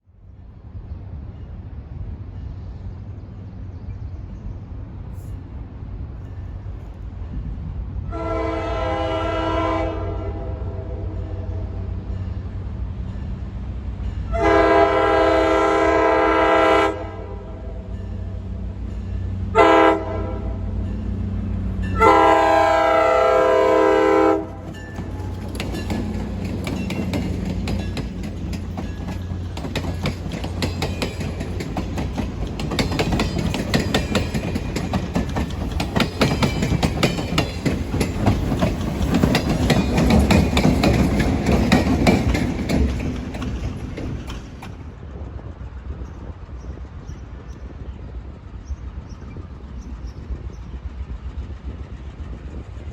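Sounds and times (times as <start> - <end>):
low train rumble: 0.0 - 52.9
locomotive air horn blasts: 8.1 - 11.7, 14.3 - 17.6, 19.5 - 20.7, 21.9 - 24.7
train wheels clickety-clack: 20.8 - 52.9.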